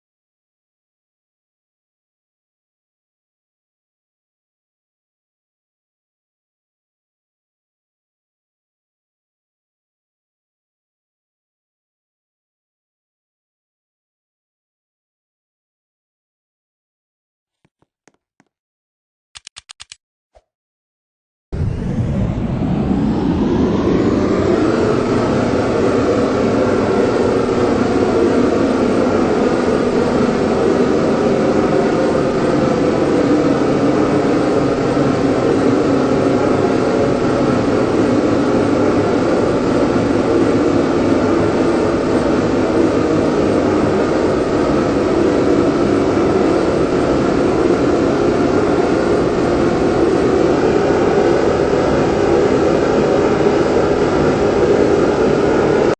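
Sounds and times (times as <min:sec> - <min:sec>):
helicopter running: 0:21.6 - 0:55.9.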